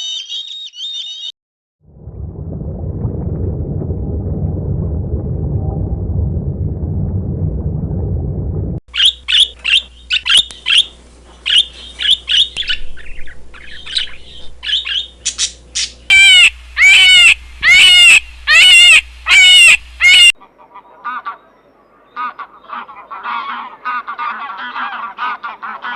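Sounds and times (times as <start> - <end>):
bird chirping: 0.0 - 1.3, 8.9 - 19.7
low rumbling noise: 1.8 - 20.3
bird squawking: 8.9 - 21.5.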